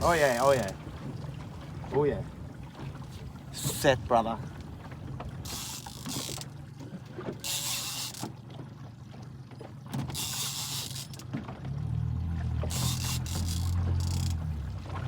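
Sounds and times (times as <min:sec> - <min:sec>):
fishing reel buzzing: 0:05.5 - 0:06.5, 0:07.4 - 0:08.3, 0:10.1 - 0:11.2, 0:12.7 - 0:14.5.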